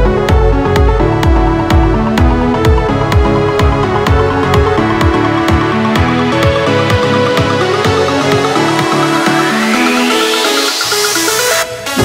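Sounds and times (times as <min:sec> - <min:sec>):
kick drum: 0:00.0 - 0:09.9
electronic dance music: 0:00.0 - 0:12.0
synth chords: 0:00.0 - 0:12.0
rising synth sweep: 0:01.4 - 0:12.0.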